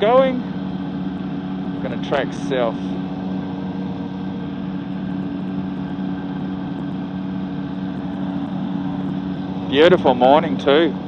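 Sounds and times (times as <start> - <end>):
engine and propeller droning: 0.0 - 11.0.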